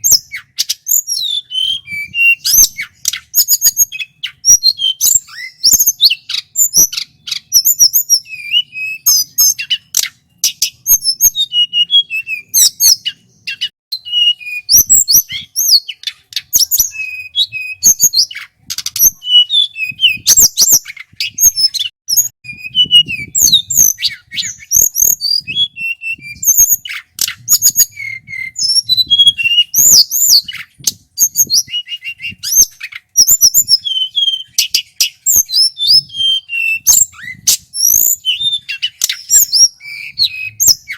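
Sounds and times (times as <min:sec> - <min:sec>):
bird singing chirps and whistles: 0:00.0 - 0:40.9.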